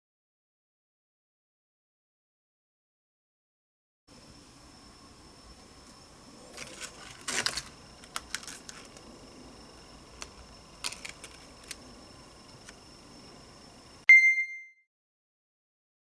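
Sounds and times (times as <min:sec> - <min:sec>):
faint high whine: 0:04.1 - 0:14.7
objects clicking and rustling: 0:06.5 - 0:09.1, 0:10.2 - 0:11.9.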